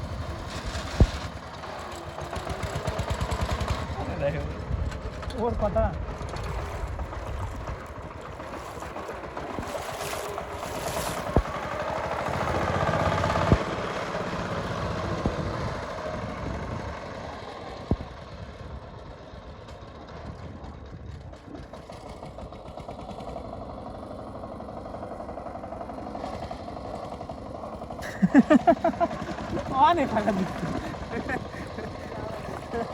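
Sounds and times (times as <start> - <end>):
diesel tiller engine running: 0.0 - 32.9.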